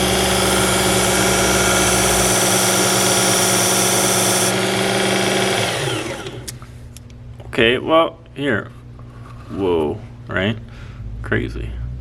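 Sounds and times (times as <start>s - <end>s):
abrasive belt grinding knife: 0.0s - 4.5s
belt sharpener motor hum: 0.0s - 6.7s.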